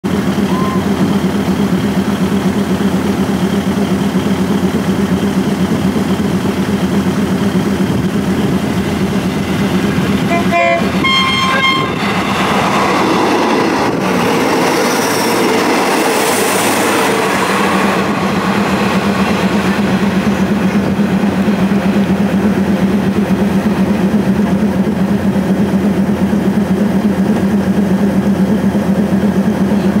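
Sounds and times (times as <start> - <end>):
diesel engine idling: 0.0 - 30.0
passenger train passing: 0.0 - 30.0
diesel train horn toots: 10.0 - 12.3.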